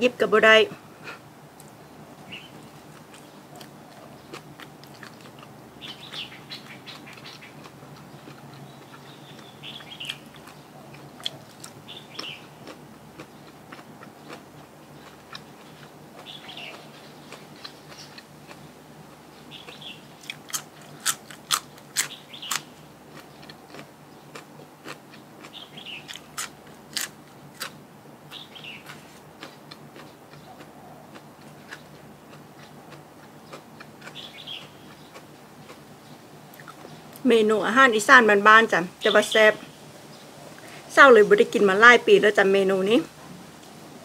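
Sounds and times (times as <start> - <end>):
chewing and crunching food: 1.6 - 37.2
bird chirping: 2.2 - 4.4, 5.8 - 12.6, 15.0 - 18.2, 19.3 - 20.2, 22.1 - 24.4, 25.4 - 26.2, 28.3 - 31.0, 33.4 - 37.2.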